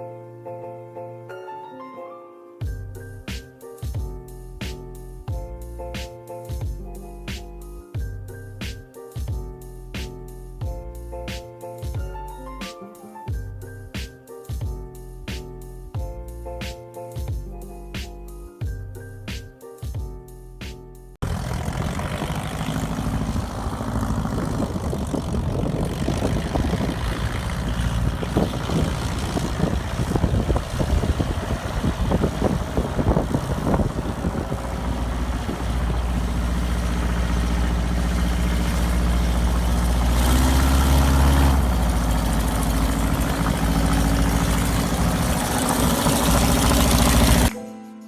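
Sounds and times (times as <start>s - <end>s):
aircraft engine droning: 21.2s - 47.5s
rough crackling noise: 21.2s - 47.5s.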